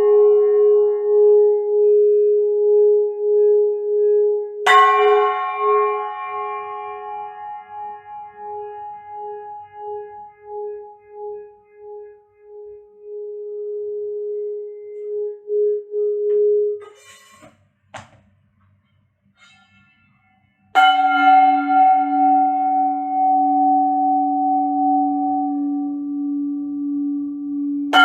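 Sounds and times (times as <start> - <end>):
singing bowl struck and ringing: 4.7 - 11.4, 20.8 - 28.0.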